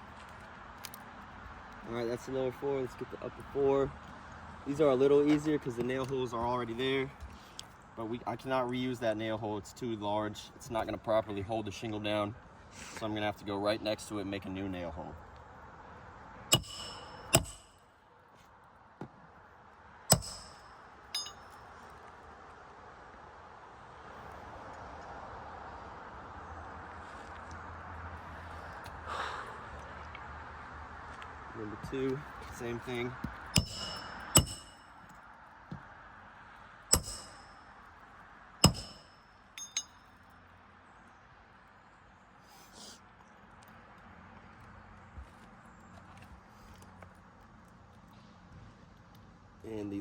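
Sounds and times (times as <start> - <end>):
hammer striking metal tool: 16.5 - 17.8, 20.1 - 21.6, 33.6 - 34.8, 36.9 - 37.5, 38.6 - 40.0
light metal clinks: 20.1 - 21.8, 38.6 - 40.2.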